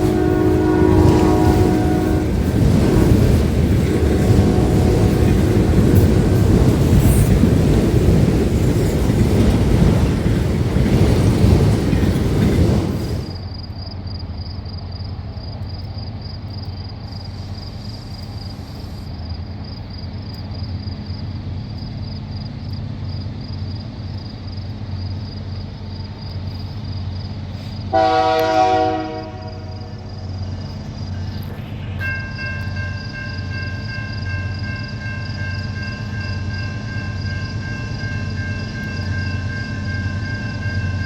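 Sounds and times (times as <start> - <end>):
train horn blast: 0.0 - 7.4, 27.9 - 30.2
diesel locomotive engine hum: 0.0 - 41.0
train passing rumble: 0.0 - 41.0.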